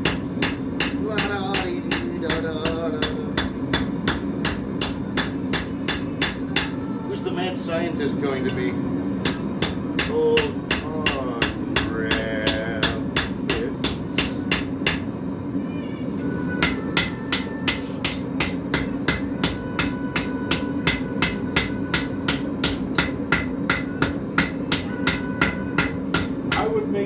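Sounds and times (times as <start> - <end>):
hammer striking anvil: 0.0 - 6.8, 9.2 - 15.1, 16.6 - 26.8
anvil ringing: 16.6 - 26.8.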